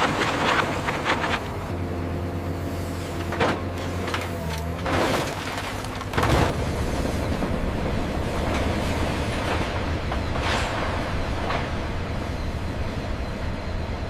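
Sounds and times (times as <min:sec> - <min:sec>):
industrial machinery humming: 0:00.0 - 0:14.0
rumbling crashes: 0:04.8 - 0:11.9.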